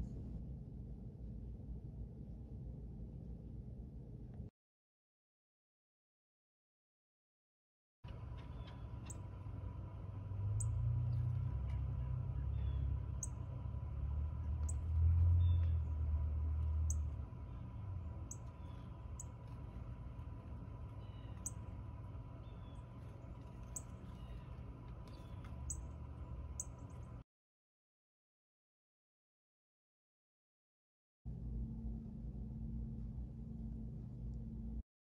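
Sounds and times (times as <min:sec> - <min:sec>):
low rumble: 0:08.4 - 0:27.2.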